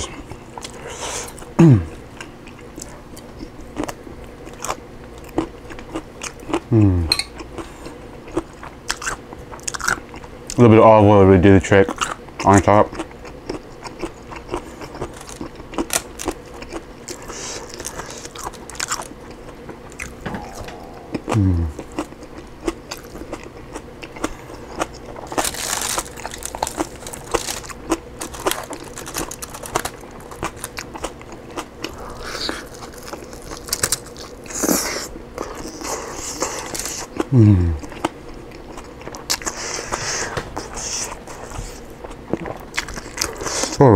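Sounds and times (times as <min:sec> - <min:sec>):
person humming mm: 0:01.6 - 0:02.0, 0:06.7 - 0:07.2, 0:20.3 - 0:22.0, 0:37.3 - 0:37.9
person chewing and biting: 0:02.2 - 0:10.3, 0:12.9 - 0:43.8
chicken tearing on foil: 0:17.1 - 0:19.1, 0:25.0 - 0:30.8, 0:32.1 - 0:37.1.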